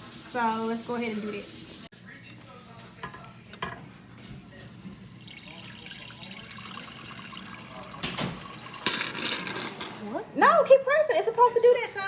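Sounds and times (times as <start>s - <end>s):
water running from fridge dispenser: 0.0s - 1.9s, 4.4s - 9.1s.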